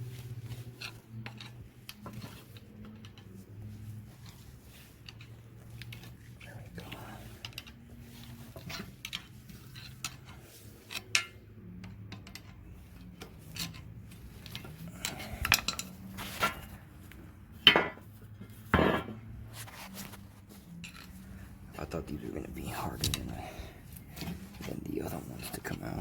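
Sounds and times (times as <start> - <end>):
hand tools clinking on metal: 13.5 - 16.7.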